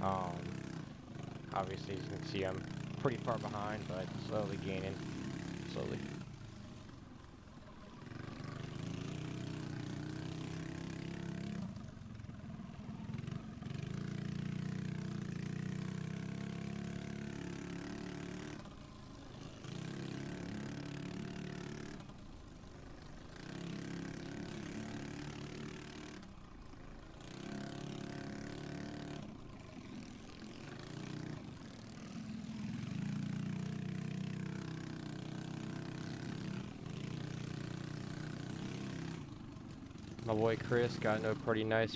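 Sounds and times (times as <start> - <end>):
pit bike engine revving: 0.0 - 6.2, 30.0 - 41.9.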